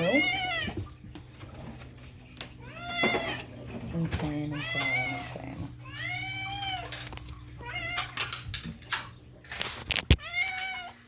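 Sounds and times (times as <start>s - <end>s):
cat meowing: 4.6s - 7.0s, 7.6s - 8.2s.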